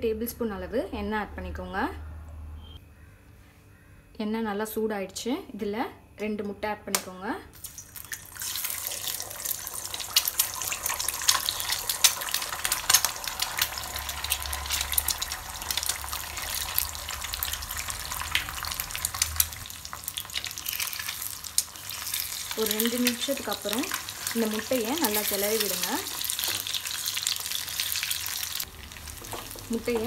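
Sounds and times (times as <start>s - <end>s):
eggs sizzling in hot oil: 7.6s - 30.0s.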